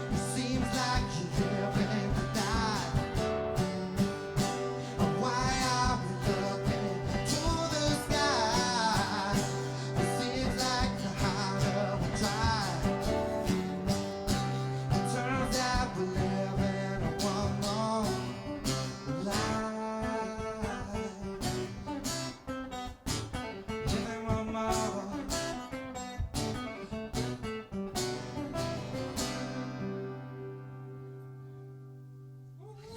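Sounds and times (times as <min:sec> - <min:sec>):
wordless voice singing: 0:00.0 - 0:21.9, 0:23.9 - 0:25.8
acoustic guitar strumming: 0:00.0 - 0:32.9.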